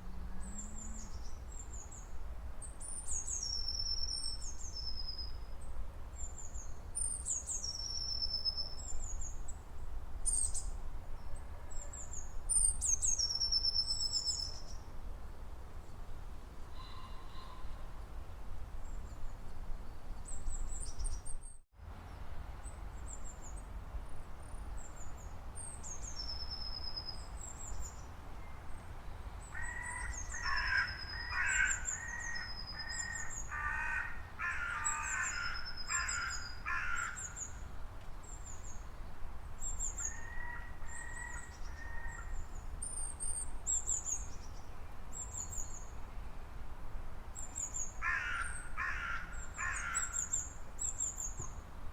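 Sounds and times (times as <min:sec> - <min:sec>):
large bird harsh calls: 0:29.5 - 0:37.5, 0:48.0 - 0:50.4.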